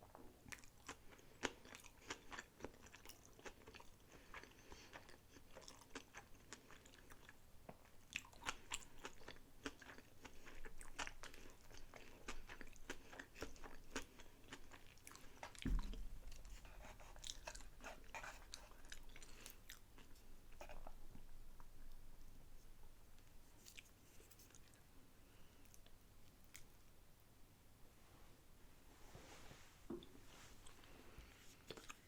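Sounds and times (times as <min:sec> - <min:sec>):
chewing with wet mouth clicks: 0:00.5 - 0:15.6, 0:31.6 - 0:32.0
low thump: 0:15.6 - 0:16.2.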